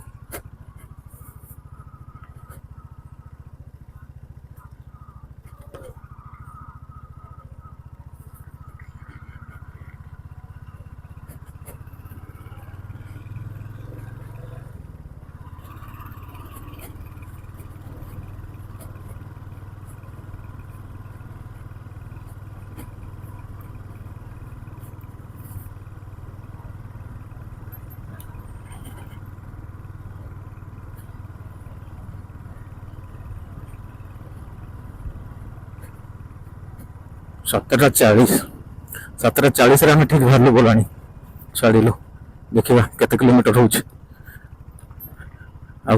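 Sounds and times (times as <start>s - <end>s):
motorcycle engine running: 0.0s - 45.9s.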